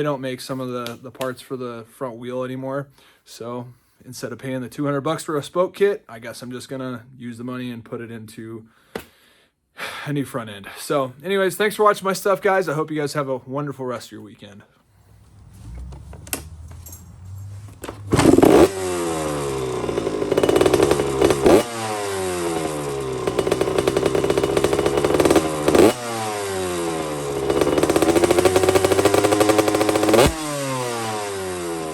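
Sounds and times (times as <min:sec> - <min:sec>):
motorcycle engine revving: 0:15.0 - 0:31.9.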